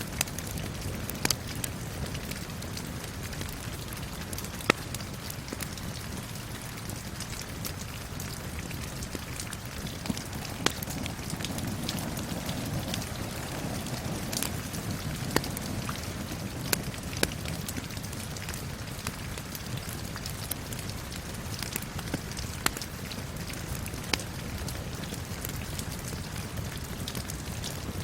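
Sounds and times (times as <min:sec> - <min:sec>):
steady rain falling: 0:00.0 - 0:28.0
wood fire crackling and popping: 0:00.0 - 0:28.0.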